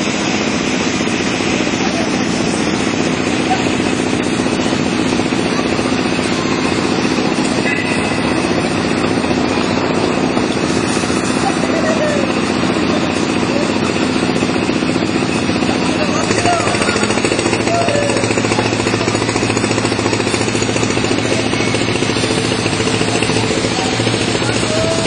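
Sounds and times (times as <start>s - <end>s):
faint voices: 0.0s - 25.0s
motor engine running loudly: 0.0s - 25.0s.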